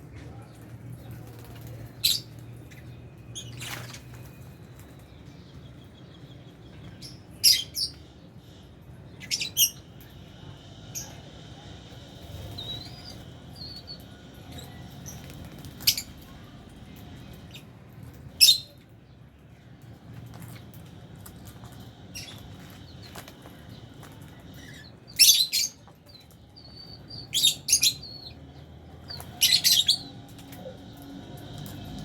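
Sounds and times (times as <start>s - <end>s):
soft bird twittering: 1.0s - 18.8s, 20.5s - 32.0s
lovebirds chirping: 20.3s - 32.0s.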